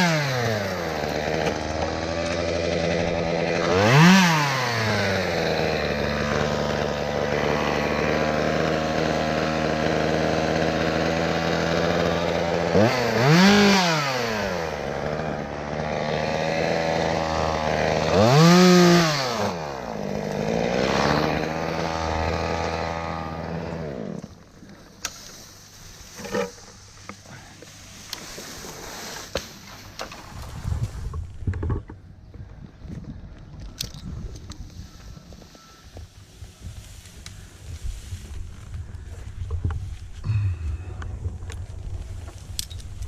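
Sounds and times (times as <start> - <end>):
chainsaw idling and revving: 0.0 - 25.0, 40.2 - 41.0.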